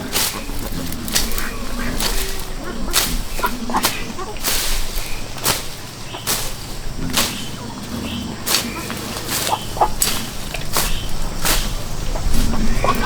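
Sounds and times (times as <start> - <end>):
sharp chopping strikes: 2.0 - 12.3.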